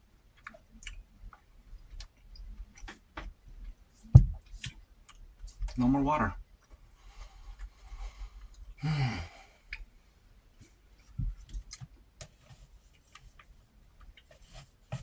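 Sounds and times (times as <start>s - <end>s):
mouth clicks while eating: 0.3s - 3.0s, 9.7s - 9.9s
man sighing: 8.8s - 9.6s.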